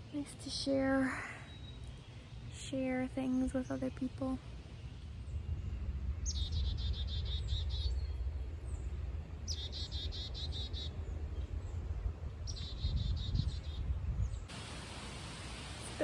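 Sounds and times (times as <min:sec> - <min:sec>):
wind on microphone: 0:05.2 - 0:16.0.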